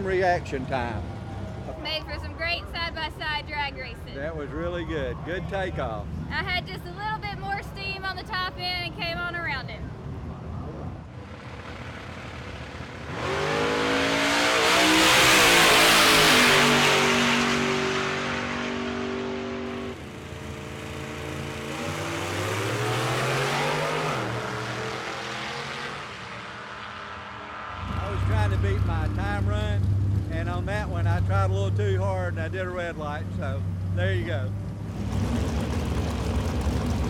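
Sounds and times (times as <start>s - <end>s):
drag car at full throttle: 10.9s - 37.0s
engine revving up: 11.6s - 32.5s, 34.8s - 37.0s.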